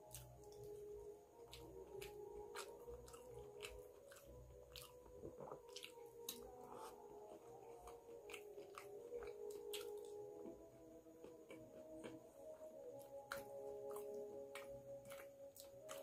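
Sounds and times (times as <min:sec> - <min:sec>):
wet chewing mouth clicks: 0:01.4 - 0:10.2.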